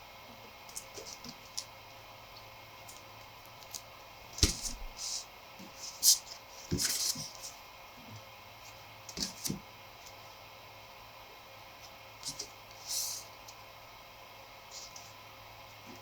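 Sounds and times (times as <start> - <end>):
paper rustling: 4.4 - 7.5.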